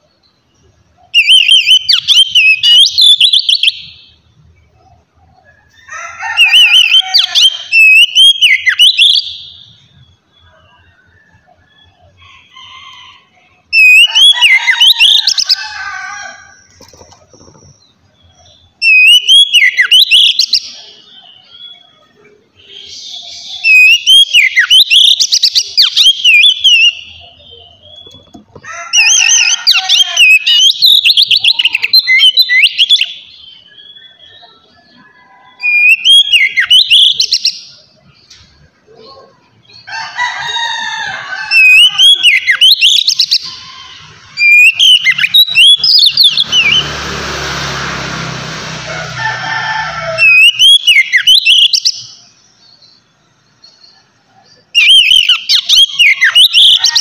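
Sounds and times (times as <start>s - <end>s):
bird singing whistled phrases: 1.1s - 4.2s, 6.4s - 10.9s, 18.4s - 22.0s, 22.6s - 28.3s, 29.0s - 34.6s, 35.6s - 37.6s, 41.6s - 43.6s, 44.4s - 46.8s, 50.2s - 52.1s, 54.8s - 57.0s
harsh noisy sound: 44.2s - 50.5s.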